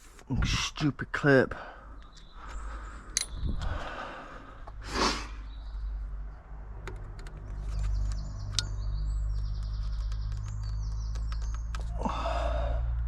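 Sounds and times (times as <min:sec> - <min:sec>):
breathy exhale: 0:01.6 - 0:05.5, 0:12.0 - 0:13.0
high chirping: 0:02.0 - 0:03.6, 0:07.5 - 0:12.1.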